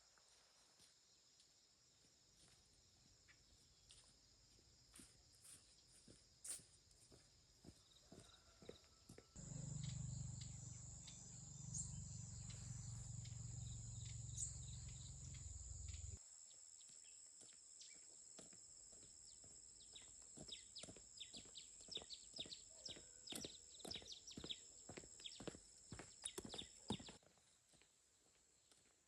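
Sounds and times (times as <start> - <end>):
insects chirring: 9.4 - 16.2
low hum: 9.4 - 16.2.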